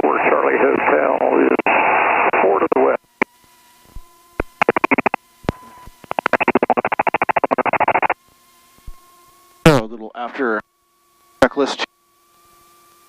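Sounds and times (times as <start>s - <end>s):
radio interference pulsing buzz: 0.0s - 13.0s
radio clicks: 4.4s - 8.2s.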